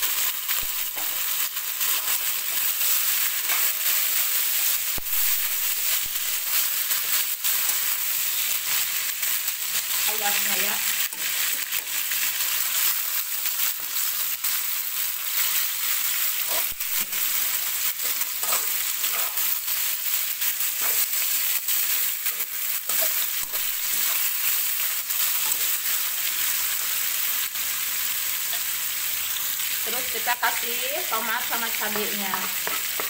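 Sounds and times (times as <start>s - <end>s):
chicken sizzling in hot oil: 0.0s - 33.0s
wooden spatula scraping and tapping: 31.9s - 33.0s.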